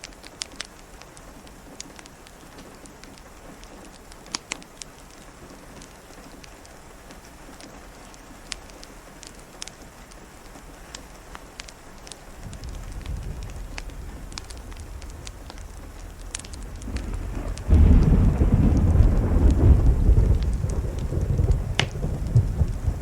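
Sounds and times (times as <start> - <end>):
steady rain falling: 0.0 - 23.0
distant thunder rumble: 12.3 - 23.0.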